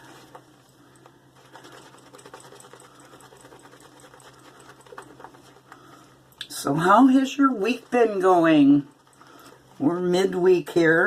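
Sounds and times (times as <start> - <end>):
shaving brush swishing lather: 1.4 - 5.8, 6.7 - 10.1.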